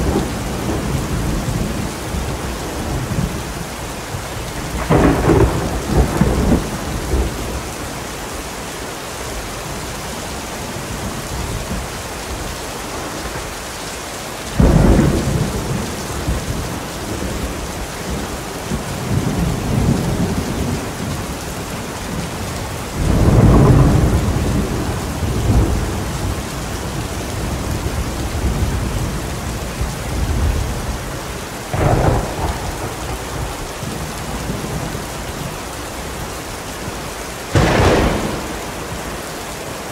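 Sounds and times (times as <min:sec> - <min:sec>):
thunder claps rolling: 0:00.0 - 0:03.4, 0:04.6 - 0:07.4, 0:23.0 - 0:26.5, 0:31.7 - 0:35.0, 0:37.5 - 0:39.9
heavy rain: 0:00.0 - 0:39.9.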